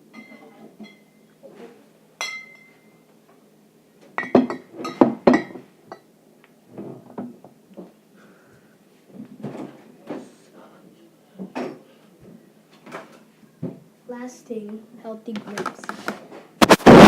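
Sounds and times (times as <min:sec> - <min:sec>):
glass jars clinking together: 0:02.2 - 0:02.9.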